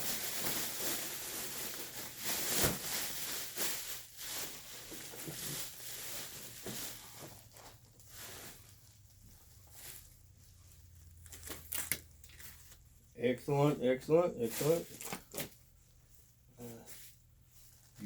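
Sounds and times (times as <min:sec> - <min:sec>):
packing rustling: 0:00.0 - 0:09.1, 0:14.4 - 0:15.6.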